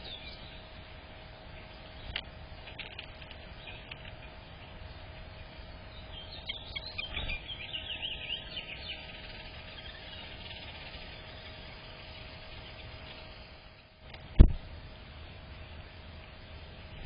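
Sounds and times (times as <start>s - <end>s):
small bird chirping: 0.0s - 13.6s.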